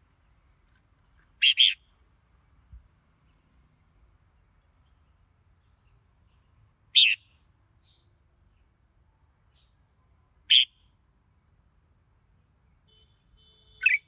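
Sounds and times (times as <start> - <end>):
bird short loud calls: 1.4 - 1.8.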